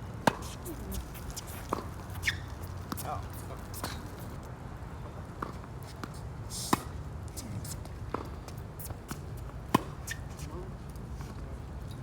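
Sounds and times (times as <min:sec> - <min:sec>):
tennis ball struck by racket: 0:00.2 - 0:00.6.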